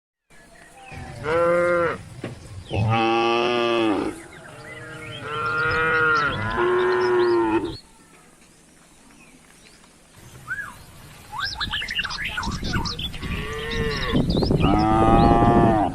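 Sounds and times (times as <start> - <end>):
cattle mooing: 1.2 - 2.0, 2.7 - 7.8, 13.2 - 15.9.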